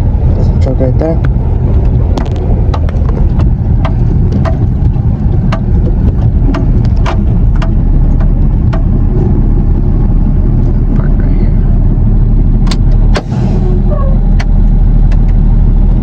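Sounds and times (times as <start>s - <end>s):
truck engine rumbling: 0.0s - 16.0s
sharp clicks and knocks: 1.2s - 9.4s, 12.6s - 13.4s, 14.3s - 15.4s.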